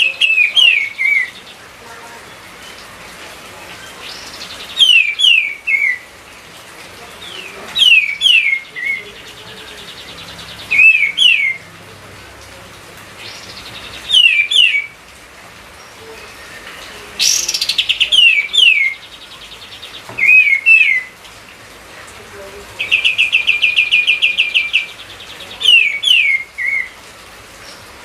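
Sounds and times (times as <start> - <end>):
songbird whistled phrases: 0.0 - 1.4, 4.1 - 6.0, 7.3 - 9.1, 10.7 - 11.6, 14.0 - 15.0, 20.2 - 21.1, 22.8 - 27.0.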